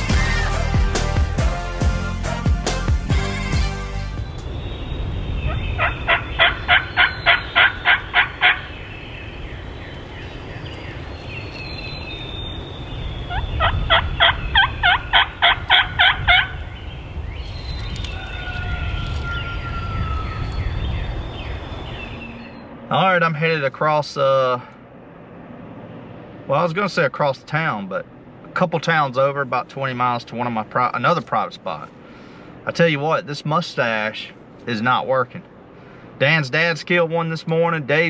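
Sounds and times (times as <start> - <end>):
wind noise on microphone: 3.1 - 22.6
turkey box call yelps: 4.7 - 20.7.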